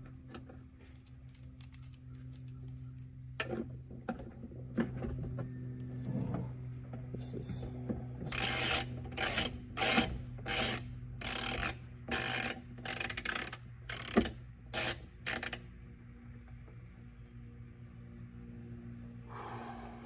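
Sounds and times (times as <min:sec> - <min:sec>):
ratcheting wrench rasping: 0:08.3 - 0:15.6.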